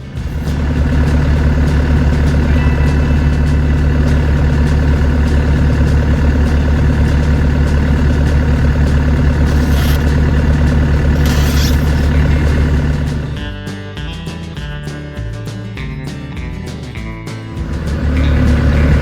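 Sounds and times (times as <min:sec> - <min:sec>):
excavator diesel engine running: 0:00.0 - 0:13.5, 0:17.6 - 0:19.0
brief hisses: 0:11.1 - 0:13.4.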